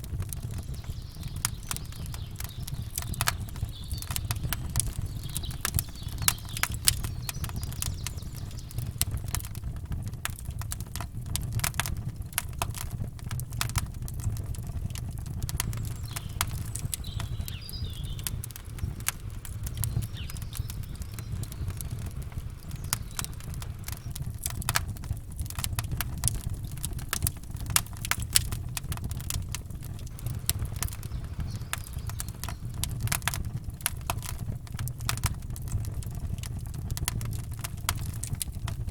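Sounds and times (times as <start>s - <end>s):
campfire crackling and popping: 0.0s - 38.9s
steady low rumble: 13.1s - 38.9s.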